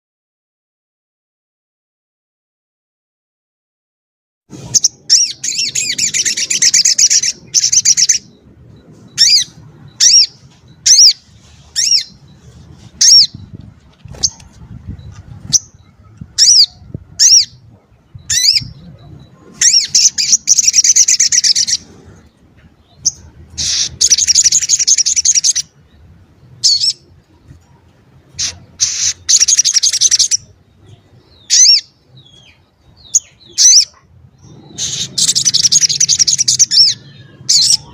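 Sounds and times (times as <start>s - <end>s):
songbird trilling: 4.8s - 22.1s, 22.8s - 25.8s, 28.3s - 37.9s
sharp bird chirps: 28.4s - 37.9s.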